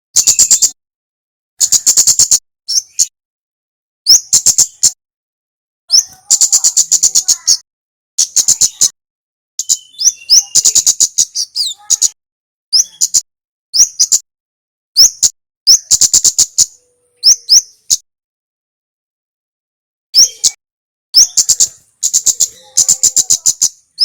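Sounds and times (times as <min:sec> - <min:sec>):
songbird ticking calls: 0:00.2 - 0:00.8, 0:01.6 - 0:03.1, 0:05.9 - 0:07.6, 0:08.2 - 0:09.0, 0:09.6 - 0:13.2, 0:13.8 - 0:14.3, 0:15.0 - 0:18.0, 0:21.2 - 0:24.0
upward-sweeping bird chips: 0:01.6 - 0:03.1, 0:05.9 - 0:07.6, 0:09.6 - 0:12.2.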